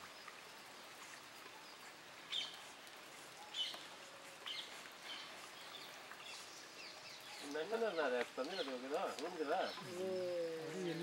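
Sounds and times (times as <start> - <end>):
faint outdoor background noise: 0.0 - 11.0.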